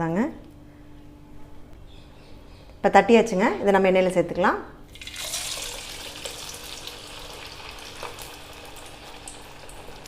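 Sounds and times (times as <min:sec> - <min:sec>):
food sizzling in hot oil: 0:05.0 - 0:10.0
oil crackles and pops: 0:05.0 - 0:10.0.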